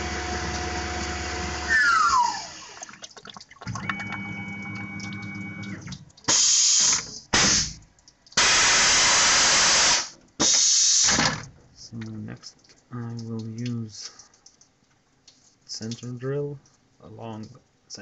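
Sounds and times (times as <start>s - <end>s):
machine hum: 0.0s - 3.0s, 3.7s - 6.2s
compressed air blasts: 6.3s - 7.8s, 8.4s - 11.3s.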